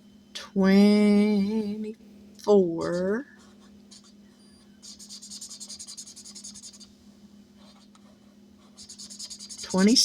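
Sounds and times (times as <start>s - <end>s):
pen scribbling on paper: 4.8s - 6.9s, 7.6s - 10.0s.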